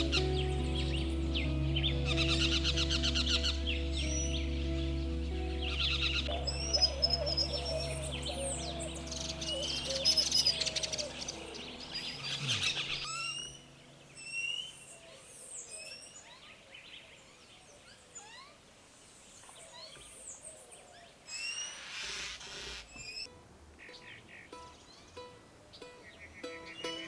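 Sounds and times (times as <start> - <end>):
low steady hum: 0.0 - 14.3
wild birds chirping: 0.0 - 27.0.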